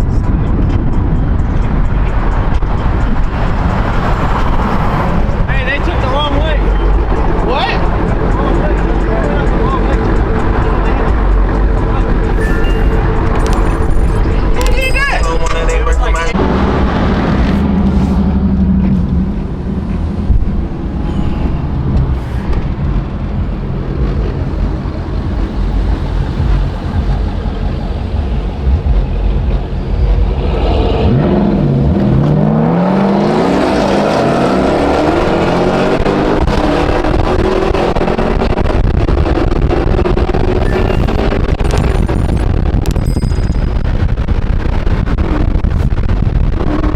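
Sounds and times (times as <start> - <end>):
car engine revving and accelerating: 0.0 - 14.7, 16.3 - 43.1
car engines rumbling: 0.0 - 46.9.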